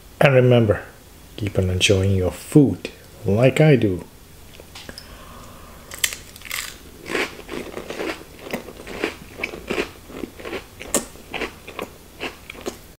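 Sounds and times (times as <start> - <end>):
person chewing crunchy cracker: 5.8 - 12.8.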